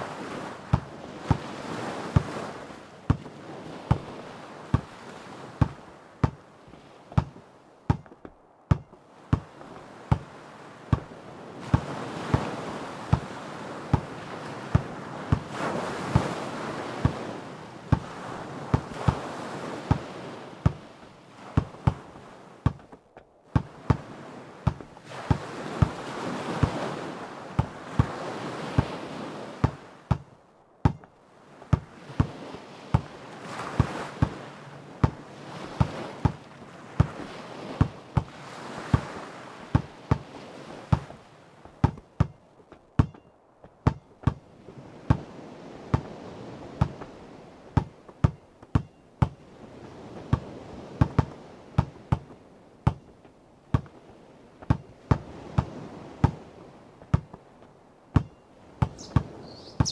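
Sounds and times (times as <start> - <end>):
ocean waves washing: 0.0 - 59.9
basketball dribbling on hard ground: 5.6 - 6.4, 7.1 - 7.3, 7.9 - 9.5, 10.9 - 11.1, 22.6 - 23.0, 23.6 - 24.1, 24.7 - 26.0, 29.6 - 31.1, 31.7 - 33.1, 35.8 - 36.4, 39.8 - 40.3, 41.8 - 42.4, 43.0 - 44.4, 47.8 - 49.4, 50.3 - 53.1, 53.7 - 53.9, 54.7 - 56.4, 58.2 - 59.9.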